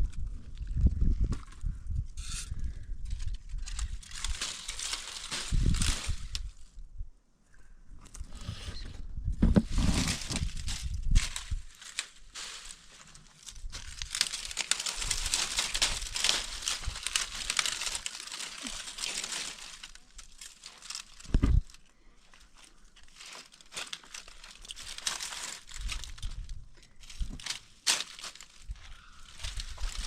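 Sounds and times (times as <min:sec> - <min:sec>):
material crinkling and rustling: 0:03.6 - 0:06.5, 0:09.6 - 0:30.0.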